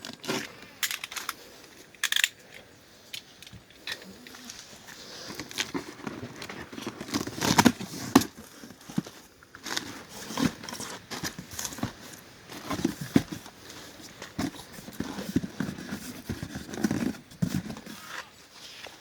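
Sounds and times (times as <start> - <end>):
packaging crinkling and rustling: 4.2 - 19.0.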